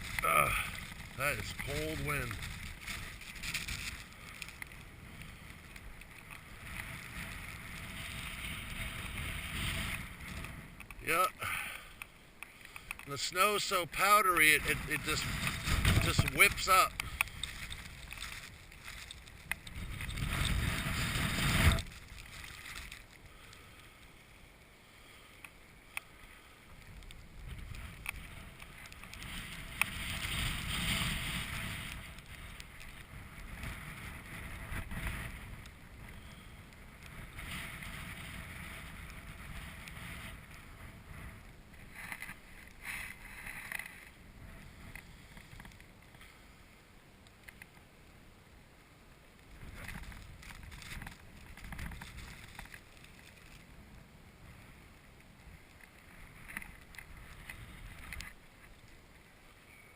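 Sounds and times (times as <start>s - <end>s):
strong wind buffeting microphone: 13.9s - 22.3s, 27.2s - 41.9s.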